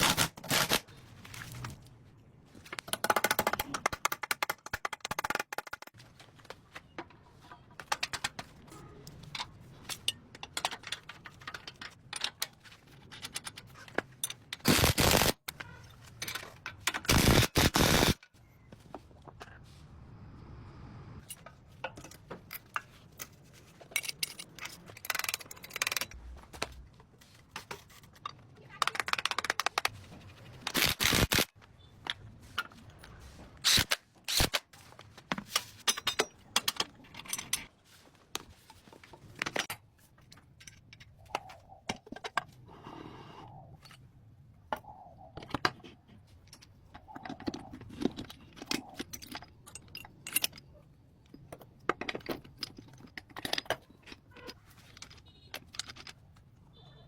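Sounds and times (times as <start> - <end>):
short noise bursts: 17.1 - 18.2
sharp clicks knocks and scrapes: 21.2 - 42.9, 44.7 - 56.5.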